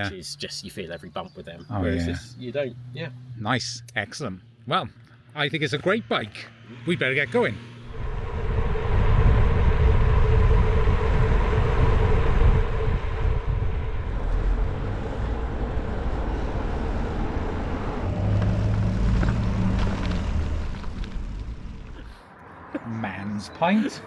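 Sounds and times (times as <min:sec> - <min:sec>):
vehicle engine rumble: 0:07.7 - 0:23.0.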